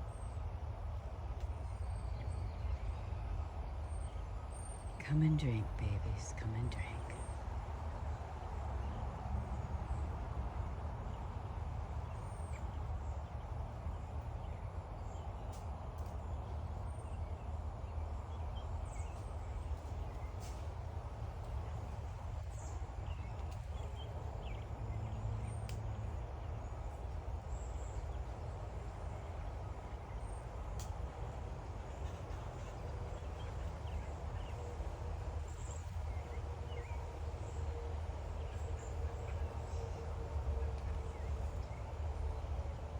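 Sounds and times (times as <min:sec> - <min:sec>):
low rumble of machinery: 0:00.0 - 0:42.9.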